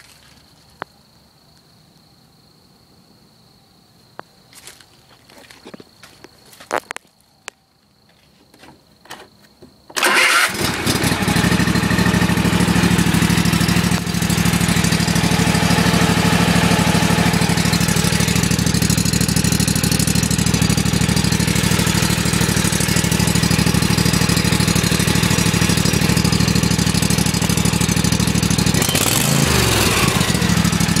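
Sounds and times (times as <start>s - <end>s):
starter cranking: 9.9s - 12.2s, 21.2s - 31.0s
mower engine running: 9.9s - 31.0s.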